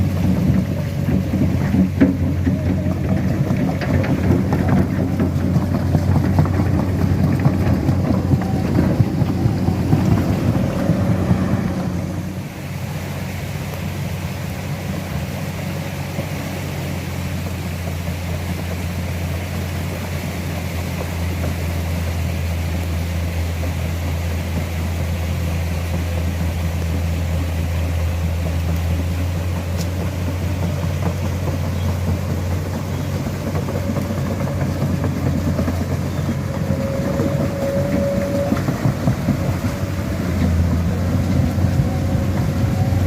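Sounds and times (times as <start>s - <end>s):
excavator diesel engine droning: 0.0s - 43.0s.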